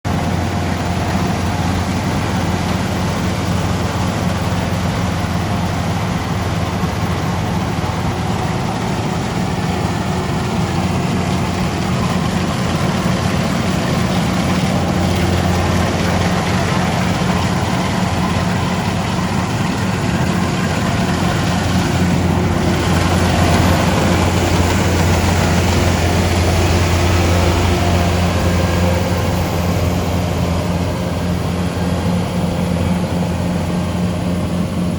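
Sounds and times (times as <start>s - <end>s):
combine harvester diesel engine: 0.0s - 34.9s.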